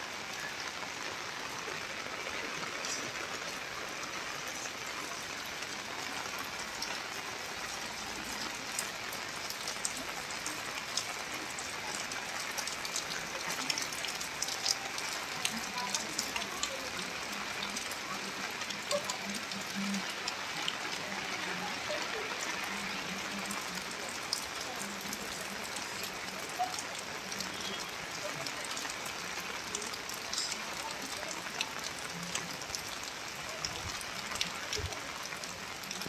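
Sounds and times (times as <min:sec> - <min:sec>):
steady rain falling: 0:00.0 - 0:36.0.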